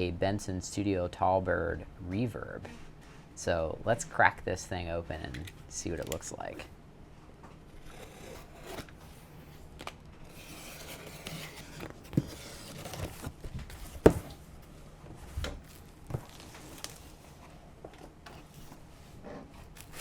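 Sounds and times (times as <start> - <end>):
cardboard rubbing: 10.3 - 14.4
box handling knocks: 13.1 - 14.4
packing tape tearing: 19.7 - 20.0.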